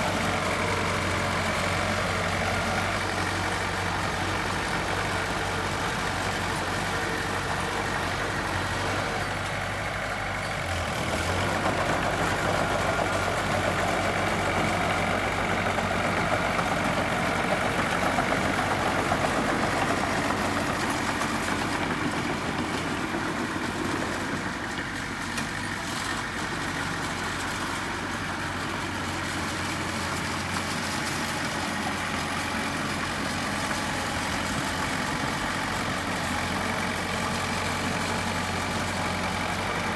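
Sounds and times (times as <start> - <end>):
heavy machinery engine running: 0.0 - 39.9.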